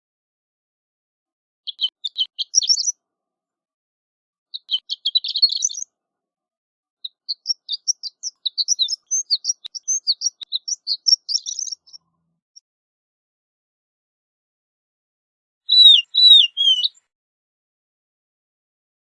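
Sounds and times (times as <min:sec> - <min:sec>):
lark singing high notes: 0:15.7 - 0:16.9.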